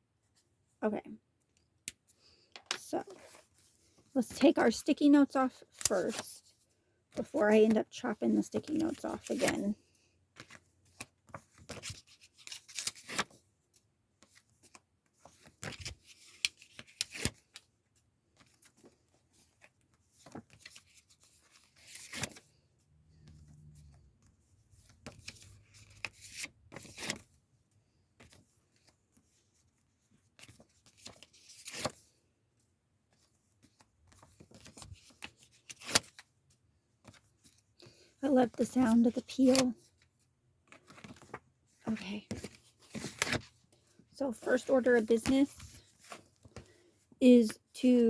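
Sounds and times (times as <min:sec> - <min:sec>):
paper rustling: 0:10.4 - 0:13.4, 0:18.4 - 0:22.5, 0:38.6 - 0:39.9, 0:40.7 - 0:46.9.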